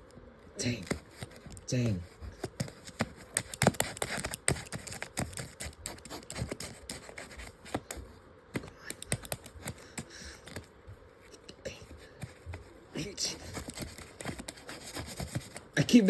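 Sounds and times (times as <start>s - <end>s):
small tool clicking and scraping: 2.4s - 8.0s, 8.6s - 10.7s, 13.4s - 15.7s.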